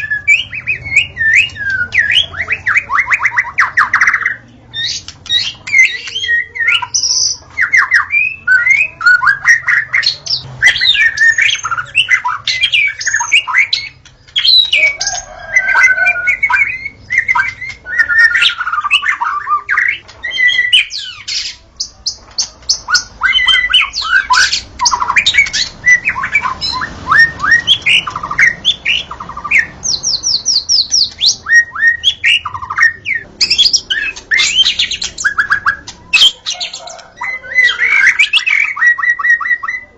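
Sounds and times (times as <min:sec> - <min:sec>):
songbird singing varied whistles: 0:00.0 - 0:39.9.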